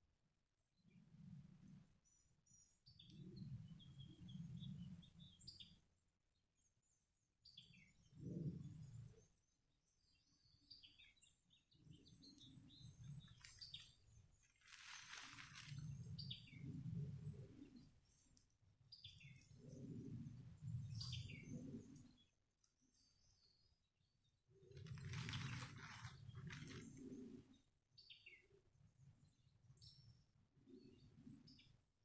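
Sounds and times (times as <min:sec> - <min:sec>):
faint songbirds chirping: 0:00.6 - 0:32.0
brief rustle: 0:13.3 - 0:16.0, 0:24.8 - 0:27.1.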